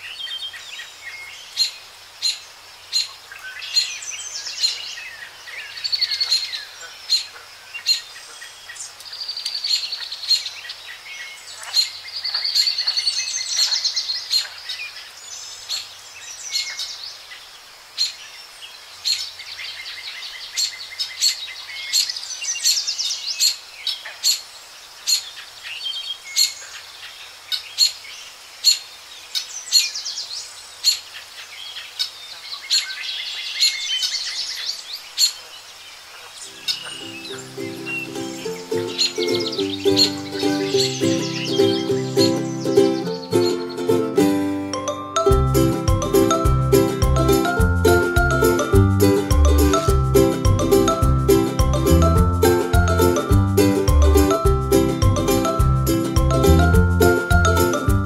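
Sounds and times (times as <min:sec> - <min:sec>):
birds singing and chirping: 0:00.0 - 0:45.0.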